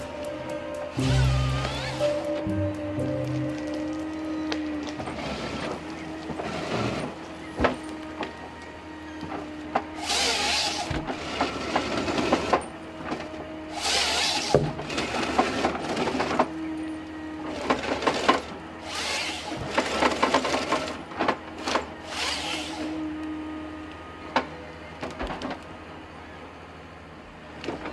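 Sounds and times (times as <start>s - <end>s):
harvester engine running: 0.0s - 26.4s
saw rasping through log: 10.0s - 12.4s, 13.7s - 15.7s, 18.0s - 20.9s, 22.1s - 23.0s.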